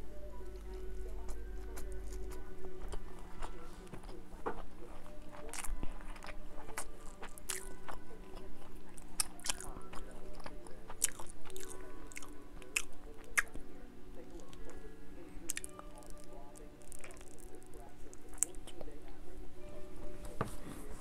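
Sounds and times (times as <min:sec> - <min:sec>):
chewing and biting: 0:00.6 - 0:14.8, 0:15.4 - 0:19.0.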